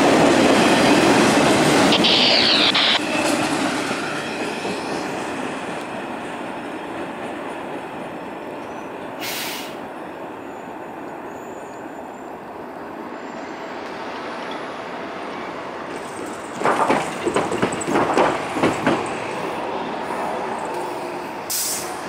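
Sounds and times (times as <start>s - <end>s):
freight train rumbling past: 0.0s - 22.0s
brief hiss: 9.2s - 9.8s, 21.5s - 21.9s.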